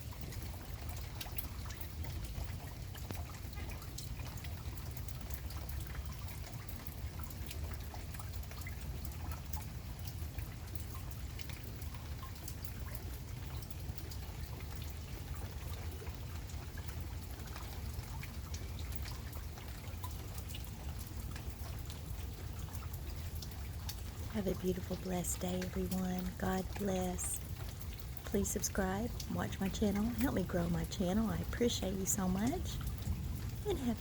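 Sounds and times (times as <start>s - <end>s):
low steady rumble: 0.0s - 34.0s
rain falling: 0.0s - 34.0s
raindrop ticks: 0.0s - 34.0s
runoff water trickling: 0.0s - 34.0s.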